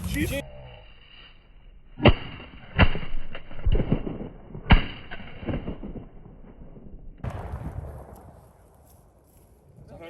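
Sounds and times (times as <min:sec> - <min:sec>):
shotgun shot: 0:02.0 - 0:08.3.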